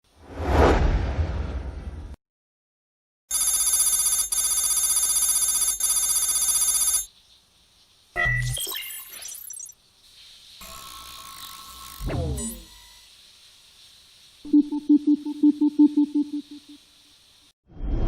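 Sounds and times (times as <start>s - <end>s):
whoosh: 0.2s - 2.2s
electronic ringing tone: 3.3s - 7.1s.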